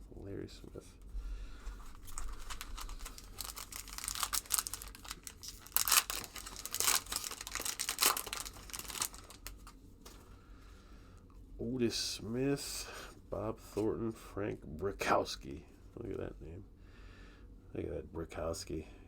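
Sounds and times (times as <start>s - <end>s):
wrapper tearing and crinkling: 1.8s - 9.8s.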